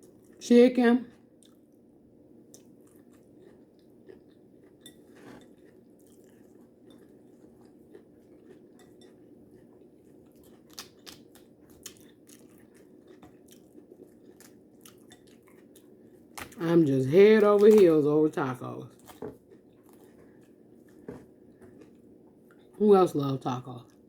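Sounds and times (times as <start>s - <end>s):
person chewing and crunching: 0.0s - 0.4s, 1.1s - 1.8s, 2.4s - 18.0s, 18.9s - 22.8s.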